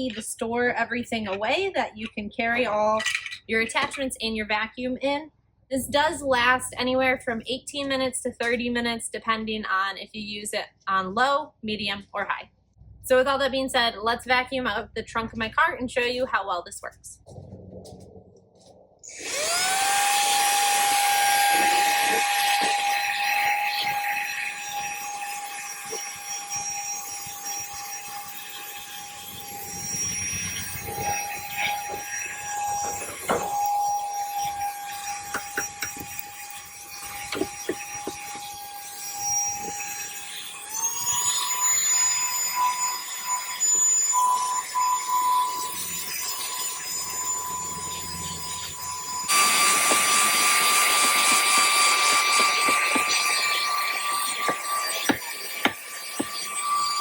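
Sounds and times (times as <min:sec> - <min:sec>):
handheld vacuum whining: 0:19.0 - 0:57.0.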